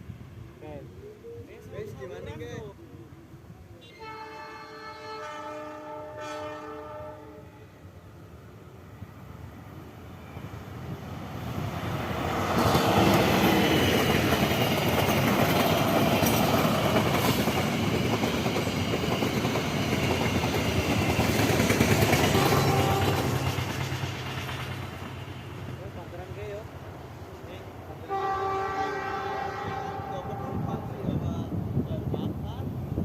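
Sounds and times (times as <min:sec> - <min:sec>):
train wheels clattering on rails: 0:12.0 - 0:25.8.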